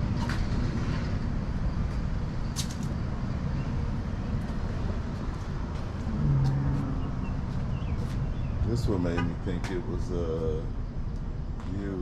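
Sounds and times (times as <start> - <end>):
low outdoor rumble: 0.0 - 12.0
short low hum: 5.9 - 7.8.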